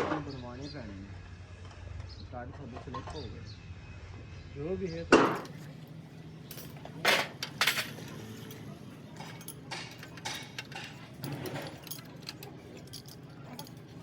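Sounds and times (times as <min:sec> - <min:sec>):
metal knocks: 0:05.2 - 0:05.6
metal clinks and rattles: 0:05.2 - 0:14.0.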